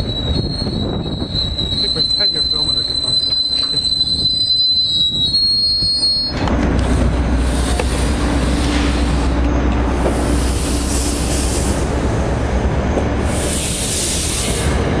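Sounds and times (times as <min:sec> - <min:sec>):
high-pitched wheel squeal: 0:00.0 - 0:06.5
train coaches rumbling past: 0:00.0 - 0:15.0.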